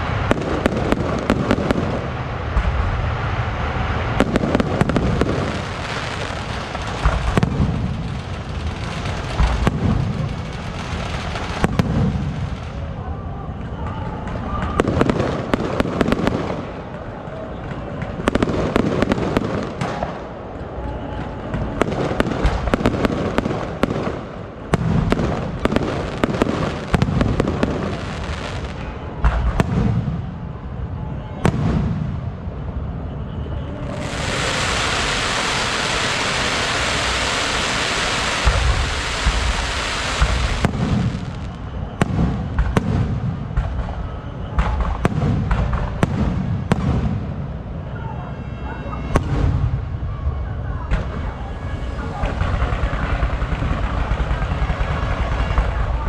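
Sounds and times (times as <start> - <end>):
fireworks bangs and crackles: 0.0 - 56.0
loud even hiss: 33.9 - 41.8.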